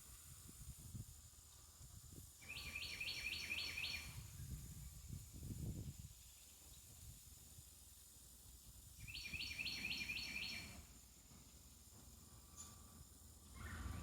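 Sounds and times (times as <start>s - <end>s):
wind rumble on microphone: 0.0s - 7.9s
songbird singing: 1.2s - 14.0s.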